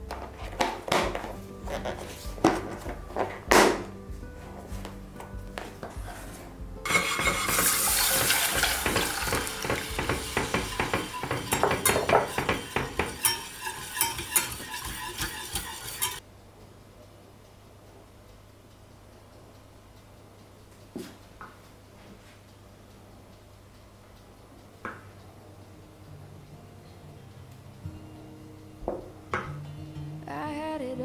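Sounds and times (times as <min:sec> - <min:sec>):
utensil scraping a pan: 0:00.1 - 0:04.7, 0:05.7 - 0:16.2
food sizzling in a pan: 0:06.8 - 0:16.2.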